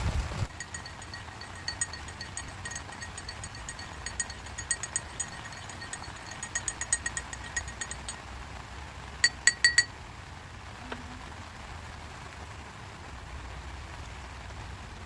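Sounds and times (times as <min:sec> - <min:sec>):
light metallic clinks: 0:00.5 - 0:08.2, 0:09.2 - 0:09.9
rain hiss: 0:10.0 - 0:15.0.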